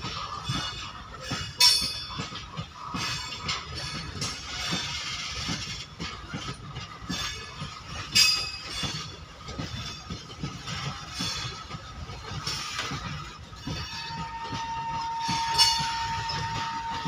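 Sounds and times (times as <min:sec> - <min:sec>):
wheels clattering on rails: 0:00.0 - 0:17.0
high-pitched wheel squeals: 0:13.6 - 0:17.0.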